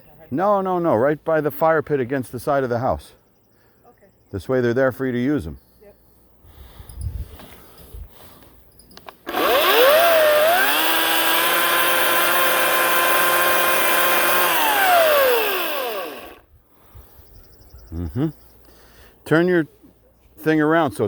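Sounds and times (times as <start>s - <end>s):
electric chainsaw whining: 9.0s - 16.5s.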